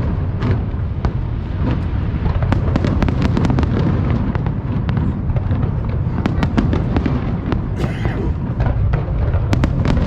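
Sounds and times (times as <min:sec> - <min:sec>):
fireworks crackling pops: 0:00.0 - 0:07.6.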